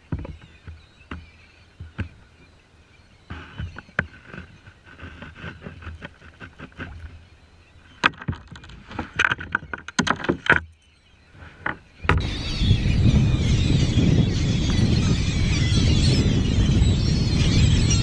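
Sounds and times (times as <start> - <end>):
knocks and splashes around kayak: 0.0 - 2.5, 3.2 - 10.7, 11.3 - 12.3
birds calling faintly: 0.0 - 18.0.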